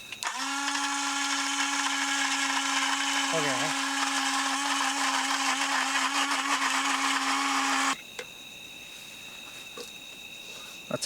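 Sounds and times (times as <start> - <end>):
crickets chirping: 0.0 - 11.0
portable blender grinding: 0.2 - 8.0.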